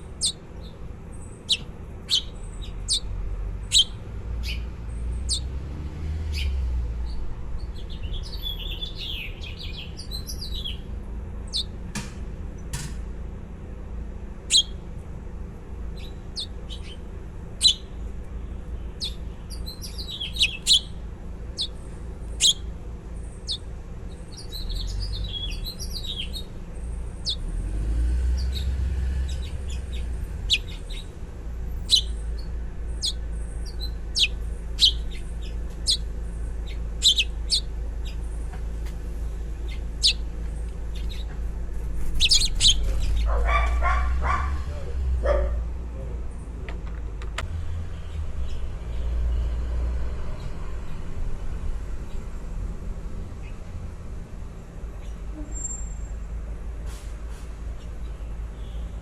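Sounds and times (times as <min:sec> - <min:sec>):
baby birds chirping: 0:00.0 - 0:05.6, 0:06.3 - 0:11.8, 0:14.4 - 0:14.8, 0:16.0 - 0:18.0, 0:18.7 - 0:27.5, 0:28.2 - 0:44.9.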